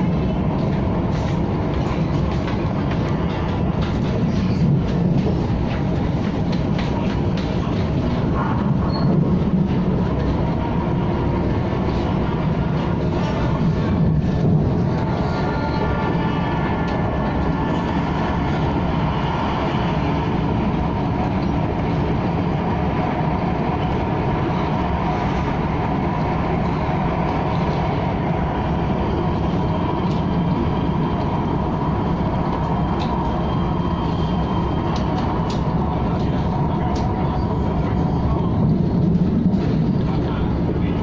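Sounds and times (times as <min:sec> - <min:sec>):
electric train rumbling: 0:00.0 - 0:41.0.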